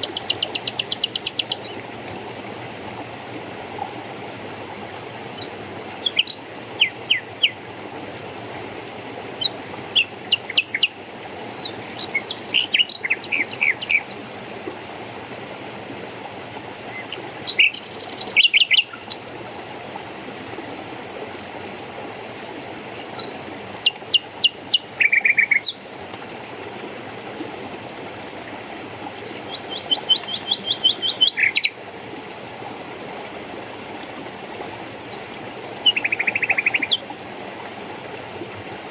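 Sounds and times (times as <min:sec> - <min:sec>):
flowing water: 0:00.0 - 0:38.9
songbirds chirping and trilling: 0:09.4 - 0:14.3, 0:29.4 - 0:31.8.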